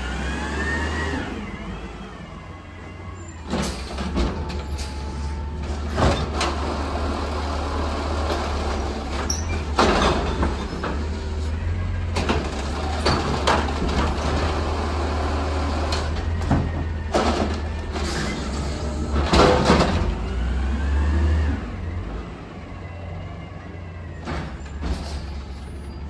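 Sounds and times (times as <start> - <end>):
garbage truck diesel engine droning: 0.0 - 26.0.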